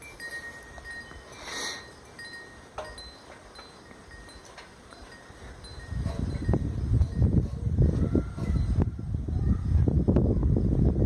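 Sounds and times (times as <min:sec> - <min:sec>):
wind chimes ringing softly: 0:00.0 - 0:08.8.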